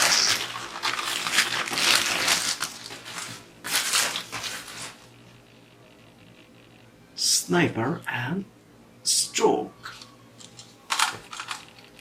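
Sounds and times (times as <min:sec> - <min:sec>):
plastic packaging crinkling: 0:00.0 - 0:05.2, 0:09.9 - 0:12.0.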